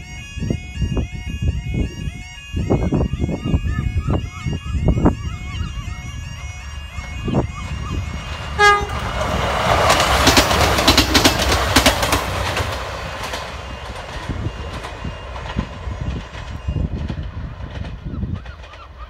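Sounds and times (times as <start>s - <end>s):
train horn: 0.0s - 16.9s
train wheels clicking over rail joints: 7.0s - 19.0s.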